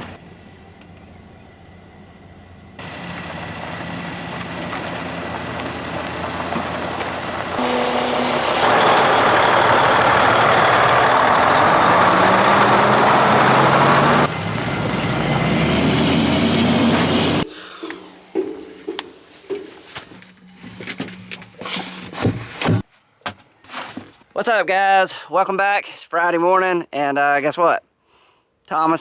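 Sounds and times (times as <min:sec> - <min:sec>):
crop sprayer engine hissing: 0:02.8 - 0:14.2.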